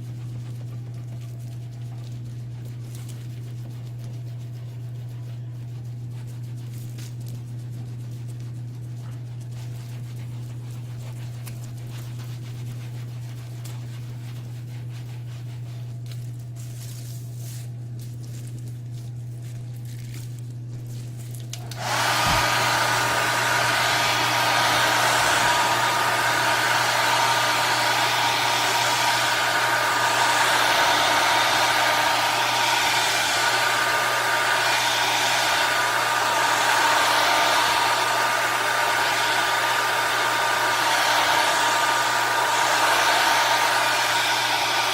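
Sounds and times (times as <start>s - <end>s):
low steady hum: 0.0s - 44.9s
hair dryer running: 21.5s - 44.9s.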